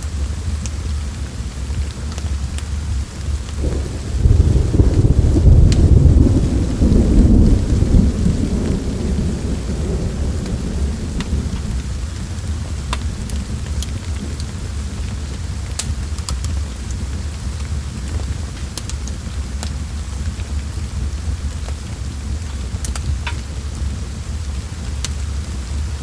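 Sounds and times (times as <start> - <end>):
steady rain: 0.0 - 26.0
thunder rumbling: 3.5 - 15.6.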